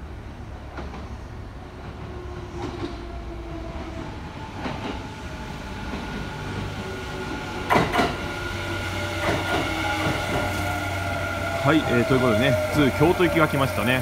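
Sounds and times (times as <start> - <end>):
electric train rumble: 0.0 - 14.0
multi-tone train whine: 0.0 - 14.0
train wheel clacks: 7.6 - 8.3, 9.1 - 10.5.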